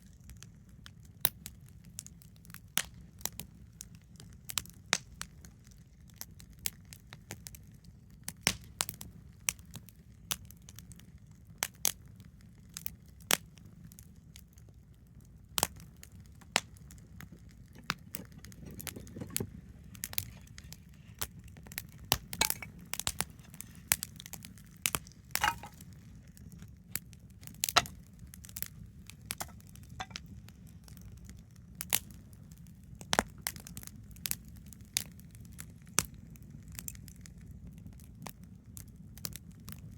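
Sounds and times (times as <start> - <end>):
fire pops and snaps: 0.0 - 12.0, 15.5 - 37.2
campfire crackling: 0.0 - 39.9
rumble of flames: 0.0 - 39.9.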